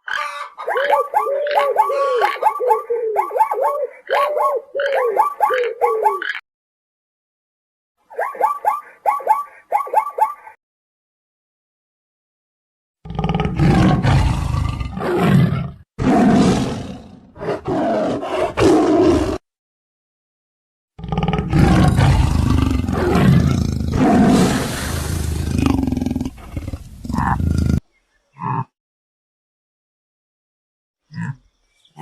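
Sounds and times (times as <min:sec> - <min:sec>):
loud animal roars: 0:13.0 - 0:19.4, 0:21.0 - 0:27.8.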